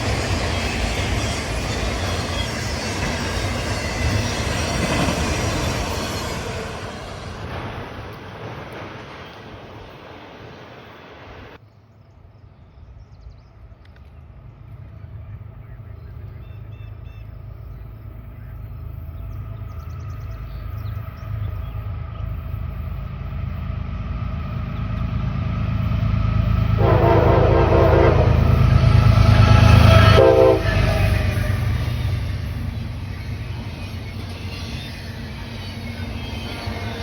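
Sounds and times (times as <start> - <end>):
train rumble: 0.0 - 37.0
locomotive horn blasts: 26.7 - 31.6.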